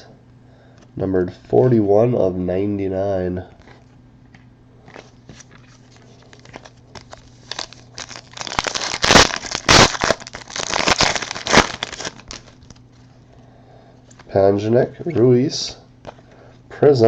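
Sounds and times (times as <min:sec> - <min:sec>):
foil wrapper crinkling: 0:04.8 - 0:13.1.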